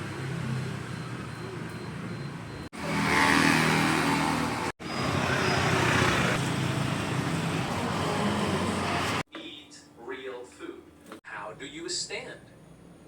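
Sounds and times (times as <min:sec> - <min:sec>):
road noise: 0:00.0 - 0:09.3.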